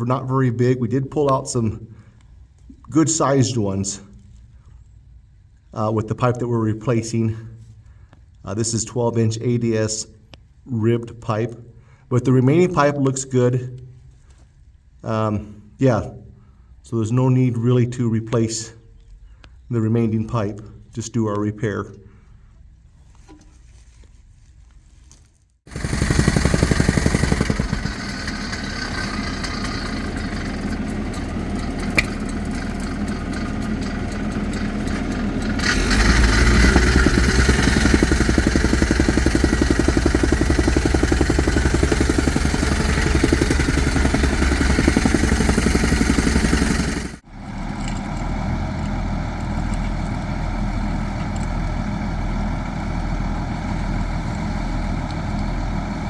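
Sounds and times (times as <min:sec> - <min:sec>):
excavator engine running: 0:25.7 - 0:56.0.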